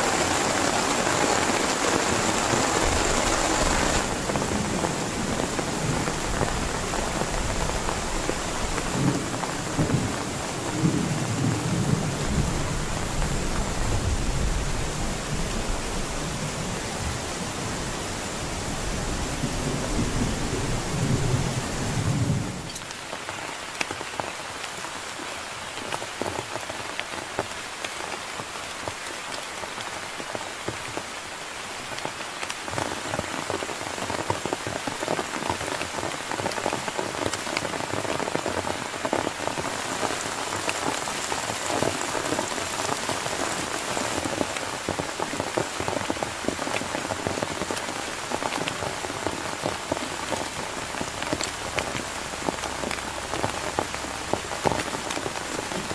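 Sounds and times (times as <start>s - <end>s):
heavy rain falling: 0.0s - 55.9s
raindrops striking a surface: 0.0s - 55.9s.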